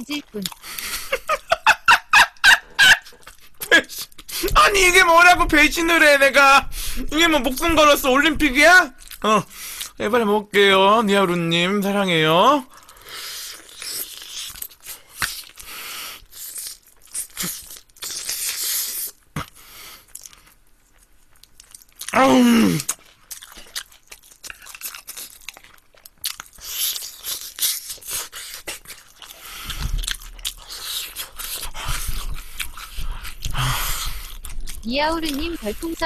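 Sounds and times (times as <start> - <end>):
chewing crunchy fried chicken: 0.1 - 4.6, 12.7 - 36.0.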